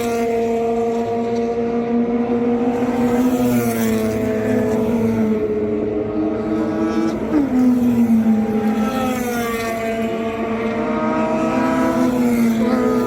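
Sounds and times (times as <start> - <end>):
rotary engine at high revs: 0.0 - 13.0.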